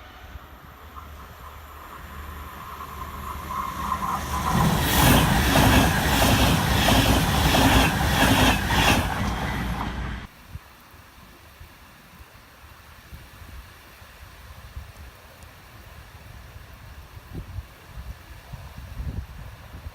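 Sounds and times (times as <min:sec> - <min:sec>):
train passing at speed: 0:00.0 - 0:10.3
wheels clacking over rail joints: 0:00.8 - 0:10.3.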